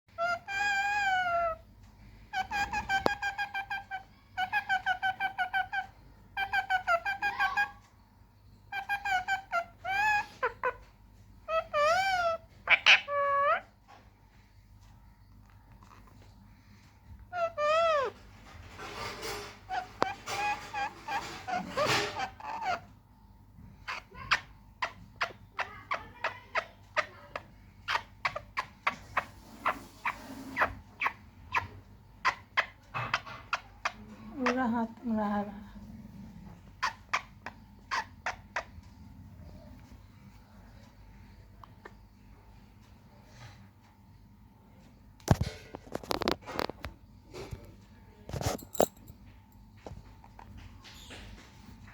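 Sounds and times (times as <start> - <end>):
parrot calling shrilly: 0.1 - 1.6, 2.3 - 7.8, 8.7 - 10.8, 11.5 - 13.7, 17.3 - 18.2, 19.7 - 22.9.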